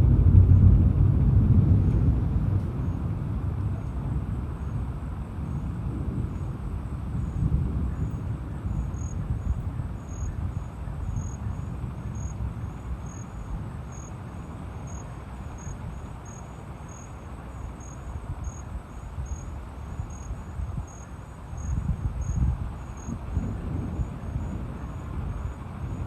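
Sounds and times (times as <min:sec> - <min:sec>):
low rumble: 0:00.0 - 0:14.0
cricket chirping: 0:03.8 - 0:26.0.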